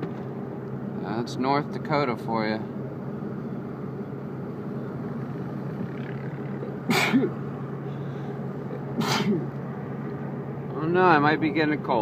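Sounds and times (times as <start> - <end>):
car interior hum: 0.0 - 12.0
man sneezing: 6.9 - 7.4, 8.9 - 9.5.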